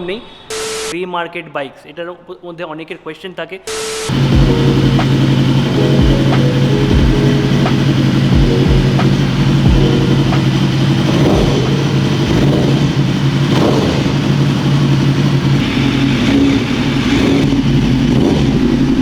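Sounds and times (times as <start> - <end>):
throttle blips: 4.1 - 12.5
motorbike engine idling: 4.1 - 19.0.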